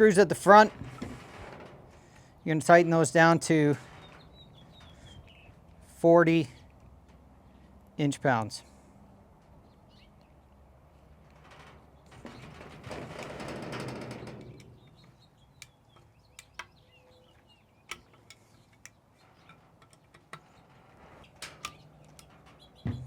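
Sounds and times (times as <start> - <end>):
light metal clicks and knocks: 11.3 - 17.2, 17.8 - 23.0.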